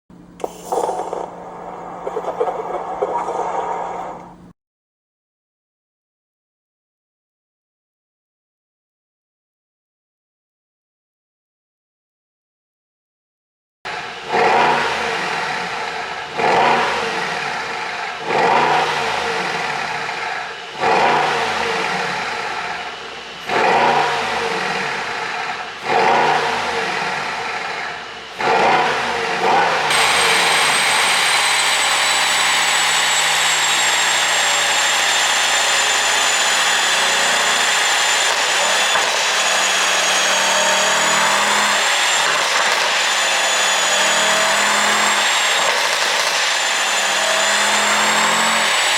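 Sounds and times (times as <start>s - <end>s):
car engine revving: 14.0s - 45.5s.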